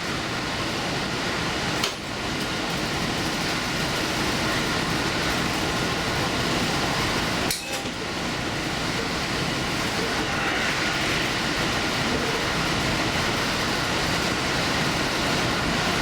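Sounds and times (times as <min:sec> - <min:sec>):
train running noise: 0:00.0 - 0:16.0.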